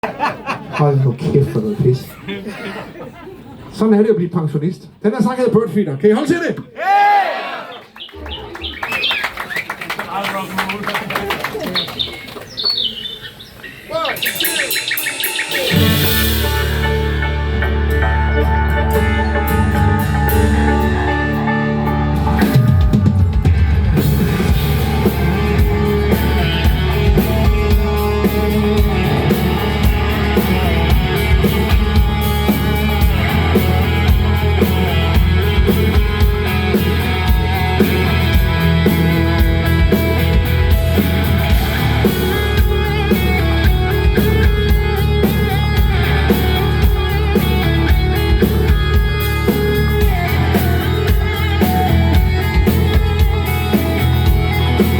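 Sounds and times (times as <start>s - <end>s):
drum kit beat: 14.0s - 54.9s
electric guitar chords: 14.5s - 54.9s.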